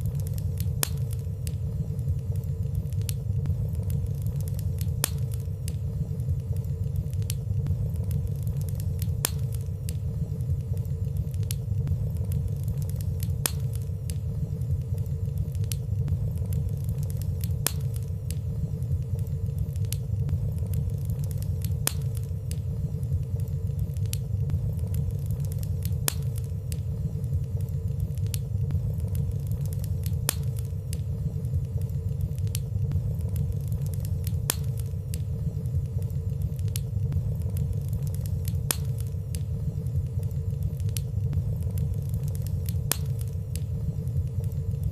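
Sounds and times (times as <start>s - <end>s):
fire crackling: 0.0s - 44.9s
wood fire rumbling: 0.0s - 44.9s.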